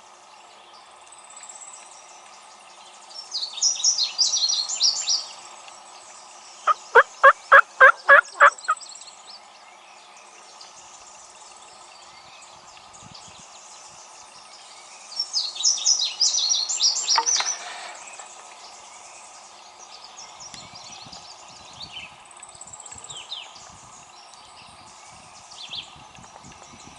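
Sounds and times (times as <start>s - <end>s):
songbirds singing: 0.0s - 26.9s
turkey yelping: 6.7s - 8.8s.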